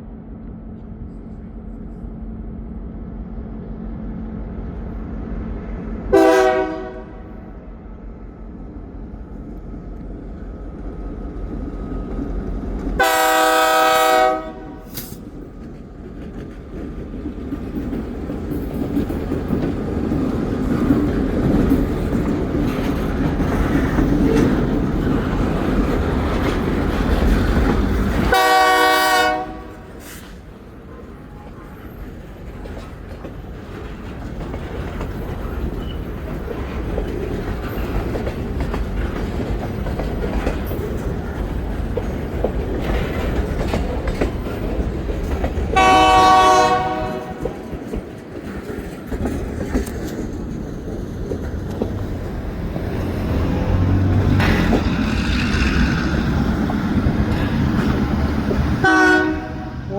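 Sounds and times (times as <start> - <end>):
train rumble: 0.0 - 59.9
locomotive air horn blasts: 6.1 - 7.3, 13.0 - 15.0, 28.3 - 30.1, 45.8 - 47.5, 58.8 - 59.8.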